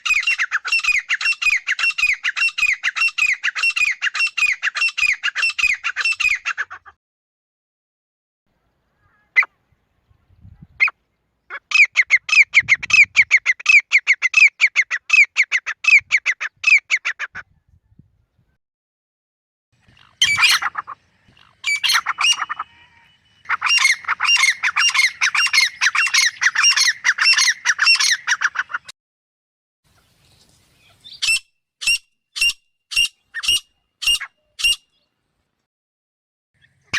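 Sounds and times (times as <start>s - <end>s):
francolin calling: 19.8s - 28.8s.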